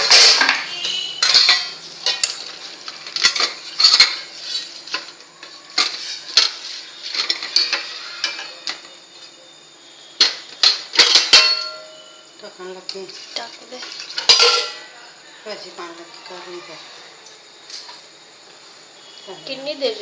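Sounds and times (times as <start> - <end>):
metal spoon scraping a pan: 0.0 - 5.1, 5.7 - 8.6, 13.1 - 14.9
light sizzling: 0.0 - 20.0.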